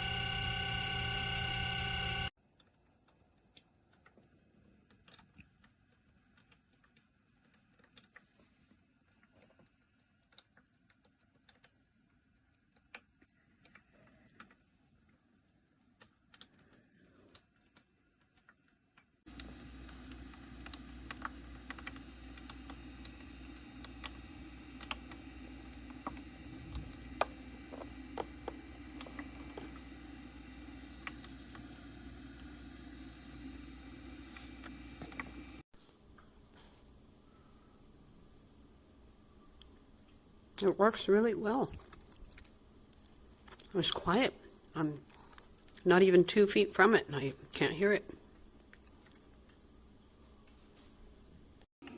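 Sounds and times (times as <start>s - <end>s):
humidifier motor hum: 0.0s - 2.3s, 19.3s - 42.2s.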